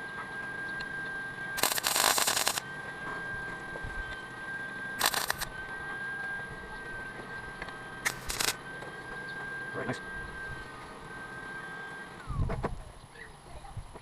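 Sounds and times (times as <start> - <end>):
steady high whine: 0.0 - 13.0
welding crackle: 1.6 - 2.7, 5.0 - 5.5, 8.0 - 8.6.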